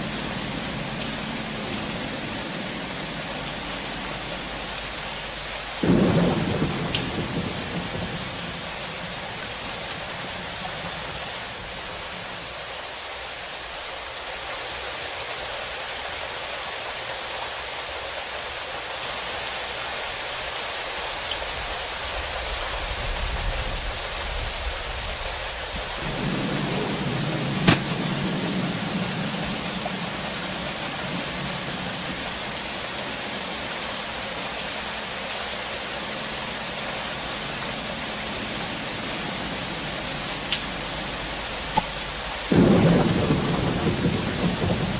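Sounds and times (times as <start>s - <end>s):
steady rain falling: 0.0s - 44.9s
sharp knock: 27.6s - 27.9s.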